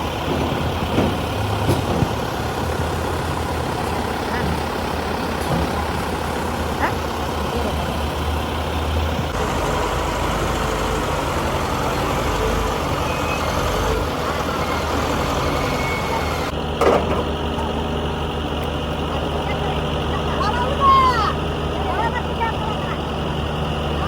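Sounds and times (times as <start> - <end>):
diesel truck engine running: 0.0 - 24.0.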